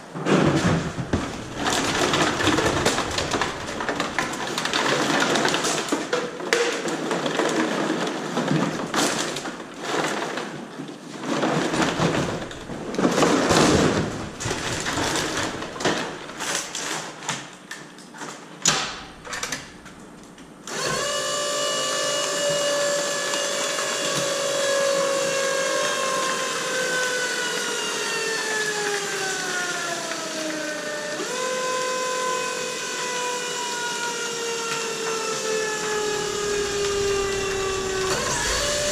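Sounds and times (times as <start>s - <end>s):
crackling and clattering: 0.0s - 10.6s, 11.2s - 17.5s, 18.2s - 20.6s, 35.9s - 38.9s
baler motor whine: 0.8s - 5.6s, 35.7s - 38.9s.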